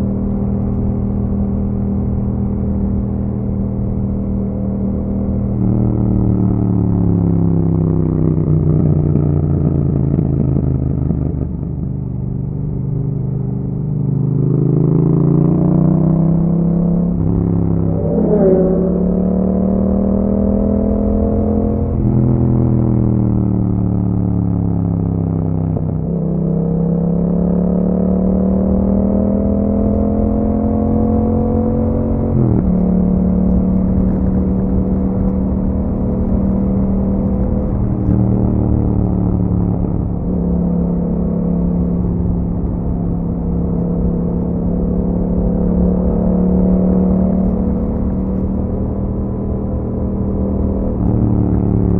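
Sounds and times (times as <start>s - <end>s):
motorcycle engine revving: 13.8s - 51.9s.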